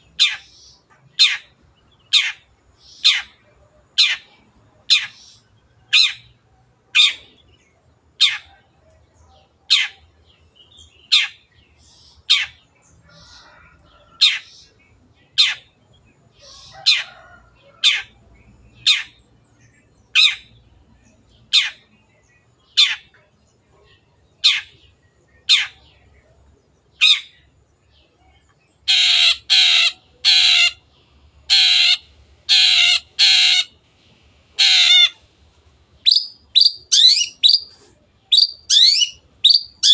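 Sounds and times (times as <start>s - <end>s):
harsh noisy bird calls: 0.0s - 7.6s, 10.8s - 19.3s, 21.5s - 26.2s, 28.8s - 39.9s.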